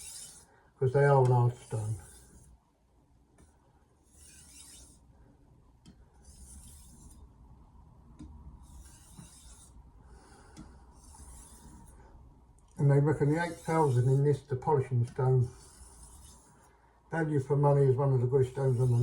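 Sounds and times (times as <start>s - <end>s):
knife rasping on whetstone: 0.0s - 0.5s, 1.6s - 2.6s, 4.1s - 5.0s, 6.2s - 7.2s, 8.6s - 9.8s, 11.0s - 12.0s, 13.2s - 14.2s, 15.5s - 16.7s, 18.6s - 19.0s.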